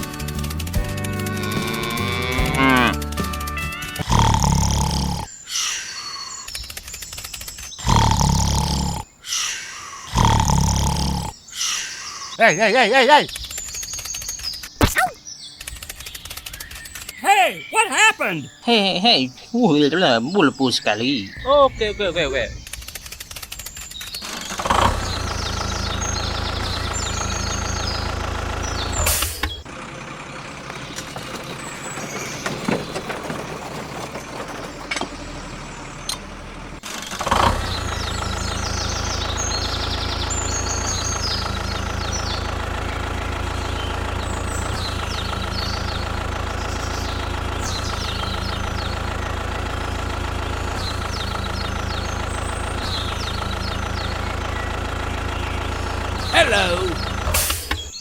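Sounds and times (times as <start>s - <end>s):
vehicle engine humming: 0.0s - 5.3s, 19.4s - 58.0s.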